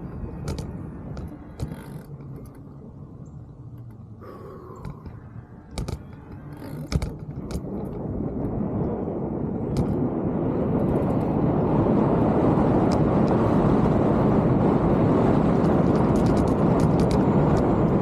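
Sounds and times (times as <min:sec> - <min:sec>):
bike clicks and rattles: 0:00.0 - 0:09.0, 0:10.8 - 0:11.4, 0:15.5 - 0:18.0
bike tyre rumble on trail: 0:04.2 - 0:18.0.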